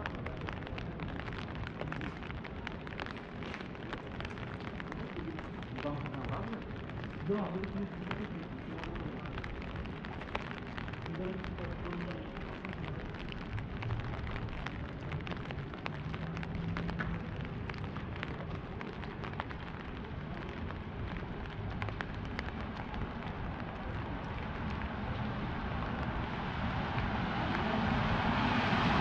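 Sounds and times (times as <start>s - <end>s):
rain hissing on street: 0.0s - 29.0s
raindrop ticks: 0.0s - 29.0s.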